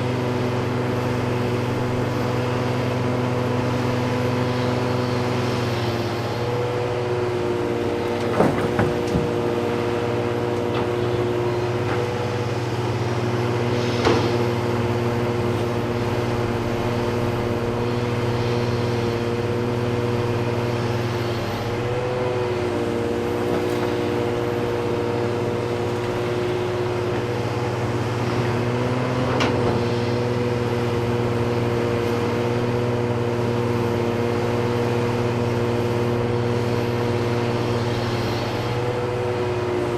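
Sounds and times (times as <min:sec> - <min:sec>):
heavy diesel engines droning: 0:00.0 - 0:39.9.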